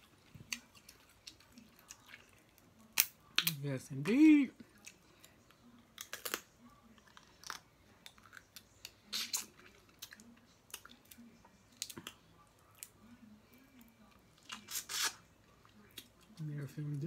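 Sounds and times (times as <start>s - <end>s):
person chewing: 0.0s - 3.1s
crab shell clicks and crackles: 5.9s - 6.5s.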